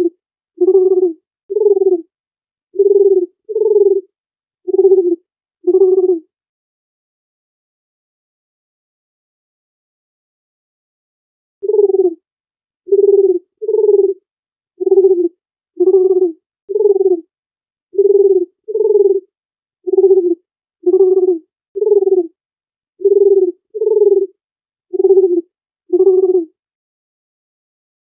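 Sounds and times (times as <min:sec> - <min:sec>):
dove cooing: 0:00.0 - 0:02.1, 0:02.8 - 0:04.1, 0:04.7 - 0:06.2, 0:11.6 - 0:12.2, 0:12.9 - 0:14.2, 0:14.8 - 0:17.3, 0:18.0 - 0:19.3, 0:19.9 - 0:22.4, 0:23.0 - 0:26.5.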